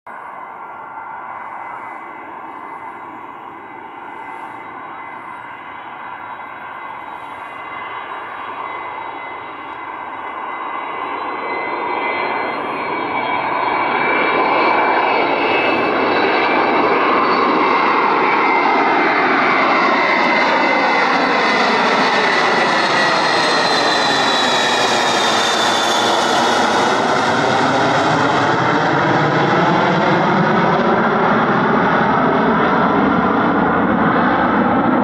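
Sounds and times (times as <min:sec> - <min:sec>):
jet engine on landing approach: 0:00.1 - 0:35.0.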